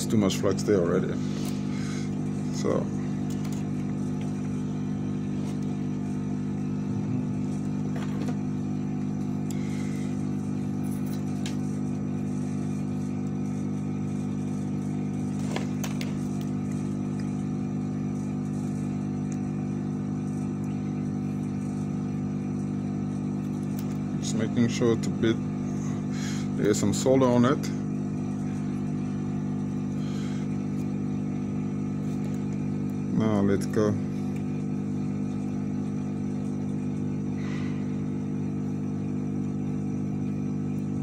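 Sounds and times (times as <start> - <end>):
electric fan hum: 0.0 - 41.0.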